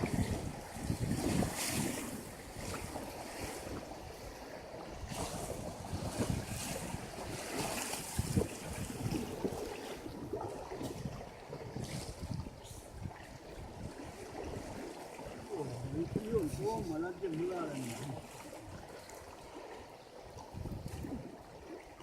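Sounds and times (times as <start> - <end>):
wind buffeting microphone: 0.0 - 19.4, 20.3 - 22.0
river water rushing: 13.4 - 20.3.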